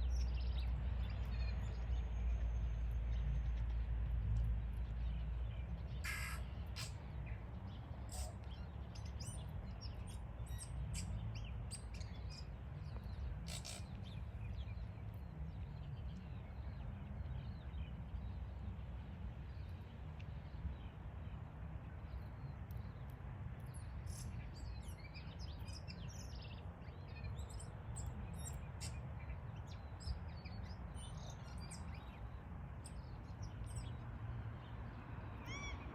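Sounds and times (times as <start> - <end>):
birds chirping: 4.8 - 18.4.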